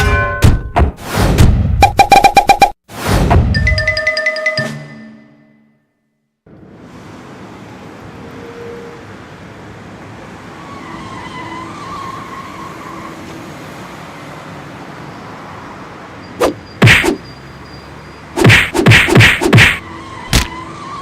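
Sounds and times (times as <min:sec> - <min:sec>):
sharp loud hits: 0:16.8 - 0:17.2, 0:18.4 - 0:19.8.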